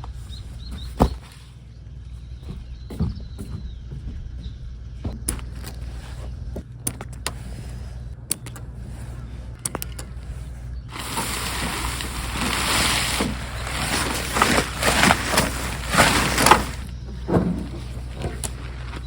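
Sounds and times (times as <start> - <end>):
low steady hum: 0.0 - 19.0
clicks and knocks of gear: 5.1 - 19.0.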